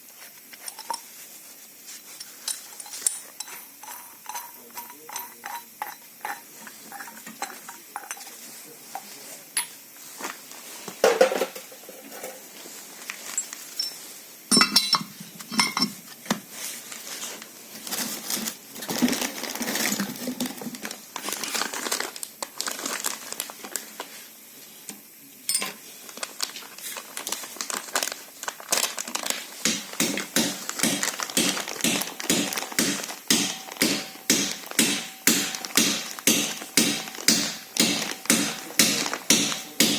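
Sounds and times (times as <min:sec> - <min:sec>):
metal tools clinking and knocking: 0:02.2 - 0:09.8, 0:13.3 - 0:16.0, 0:29.7 - 0:39.9
regular taps: 0:29.7 - 0:39.9.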